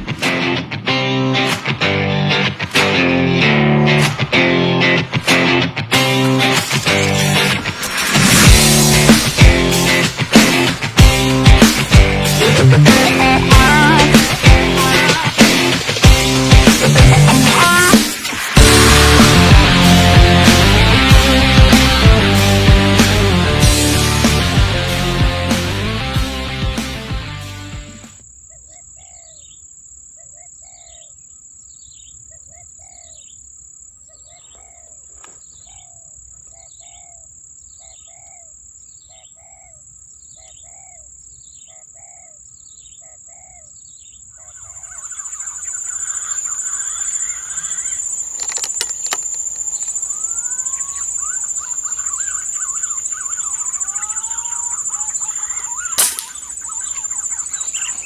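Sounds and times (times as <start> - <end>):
birds chirping: 1.4 - 21.6, 28.2 - 58.0
air rifle shot: 56.0 - 56.6.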